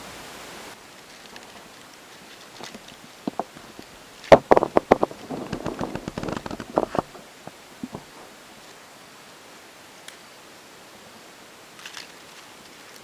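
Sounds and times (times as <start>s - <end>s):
sharp knocks and crackles: 1.0s - 8.3s.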